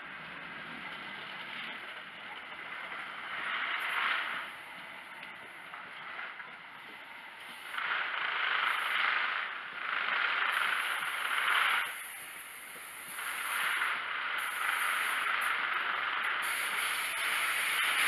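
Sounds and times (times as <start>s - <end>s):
train wheels hissing on rails: 2.5s - 5.2s, 6.1s - 18.0s.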